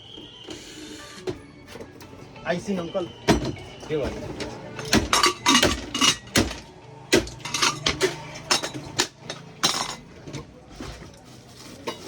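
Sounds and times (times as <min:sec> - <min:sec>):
metal utensils clinking: 0:02.8 - 0:12.0.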